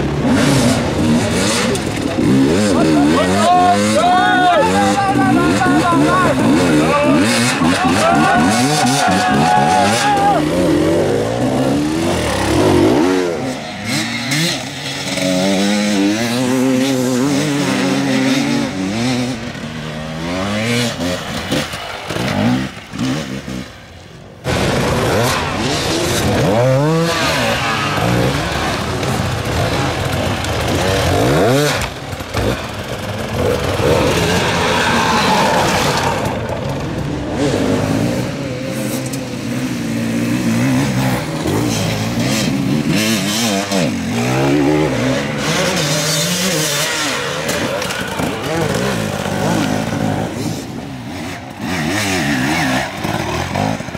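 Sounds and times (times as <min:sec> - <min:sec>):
dirt bike engines revving: 0:00.0 - 0:53.9.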